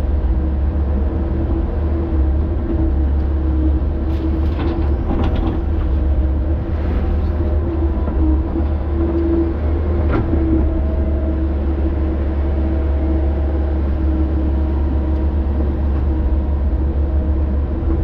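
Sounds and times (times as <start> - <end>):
heavy machine diesel engine running: 0.0 - 18.0
machine knocks and clanks: 4.1 - 6.2.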